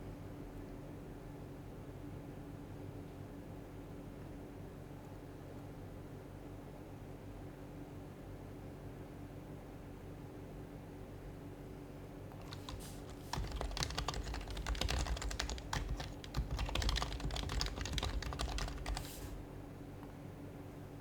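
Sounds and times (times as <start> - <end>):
fast typing on keyboard: 12.4 - 19.4.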